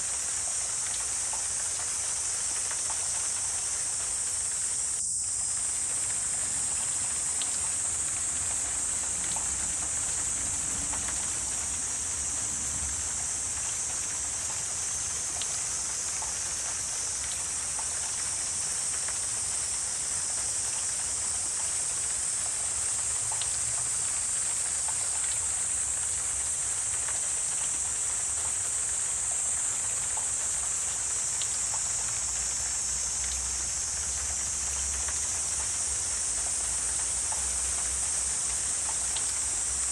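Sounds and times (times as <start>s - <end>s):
high-pitched hiss: 0.0s - 39.9s
faint ticks: 0.4s - 4.2s, 13.6s - 21.0s, 22.9s - 39.9s.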